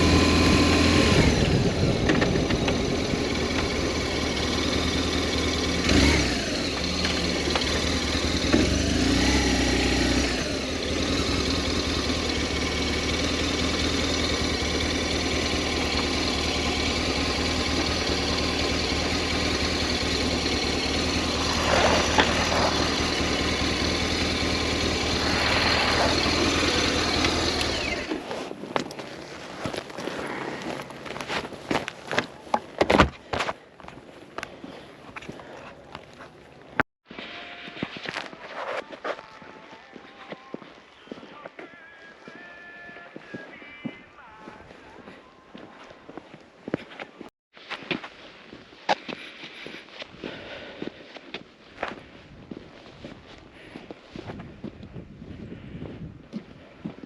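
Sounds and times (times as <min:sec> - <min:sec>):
motorcycle engine running: 0:00.0 - 0:32.5.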